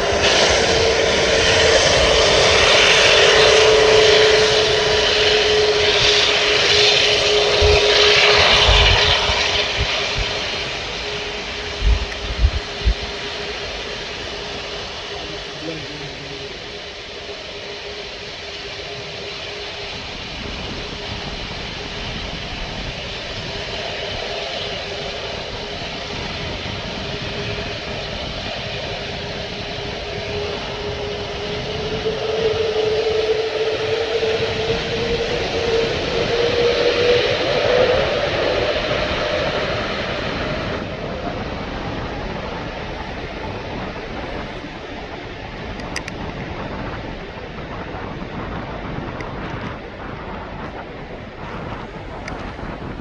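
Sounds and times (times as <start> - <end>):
jet engine roar: 0.0 - 53.0.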